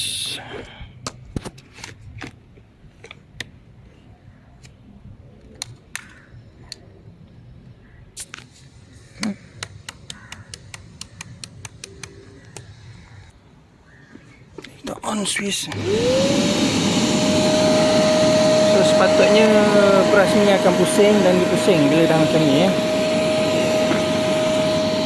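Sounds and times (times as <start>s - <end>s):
sharp clicks and light taps: 9.2s - 12.7s.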